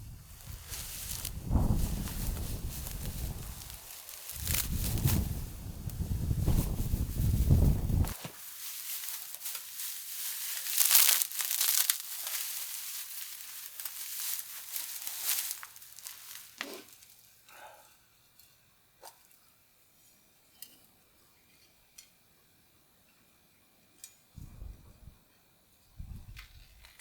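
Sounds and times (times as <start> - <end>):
low rumble: 0.0 - 8.1
dry tinder crackling and rustling: 0.0 - 17.3.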